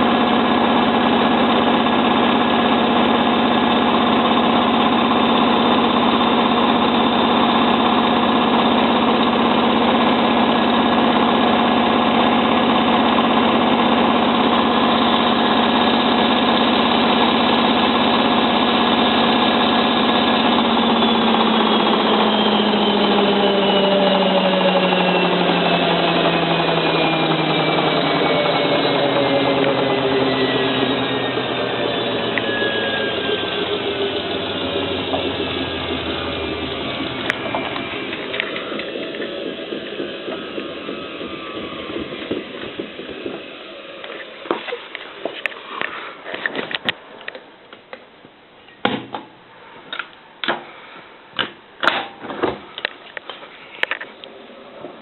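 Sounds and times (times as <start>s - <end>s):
washing machine drum spinning: 0.0s - 45.3s.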